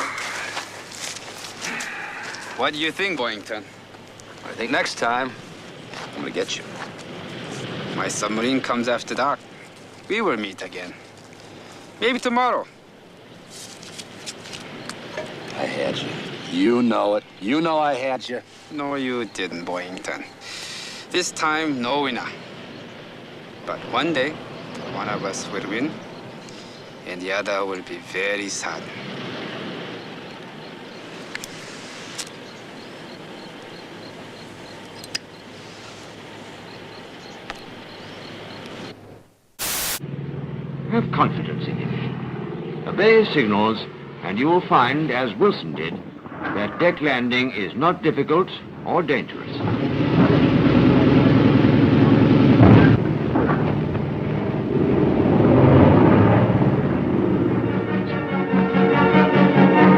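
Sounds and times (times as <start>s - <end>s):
steady hiss: 0.0s - 40.0s
piston aircraft engine drone: 50.6s - 59.9s.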